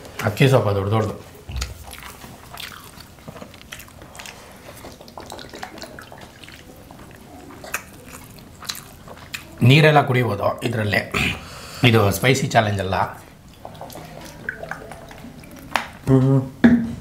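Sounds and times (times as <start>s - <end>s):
chewing and mouth smacks: 1.4s - 9.6s, 13.2s - 16.1s.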